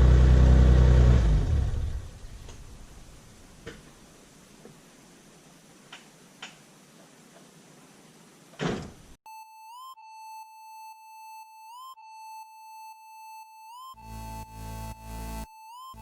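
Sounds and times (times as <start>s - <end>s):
chirping electronic tone: 9.3s - 16.0s.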